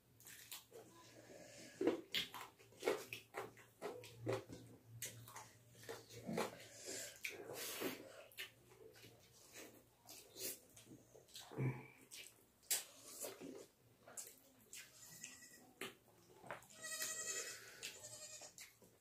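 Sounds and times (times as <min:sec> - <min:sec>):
wet chewing and lip smacks: 0:00.2 - 0:00.8, 0:01.8 - 0:16.4.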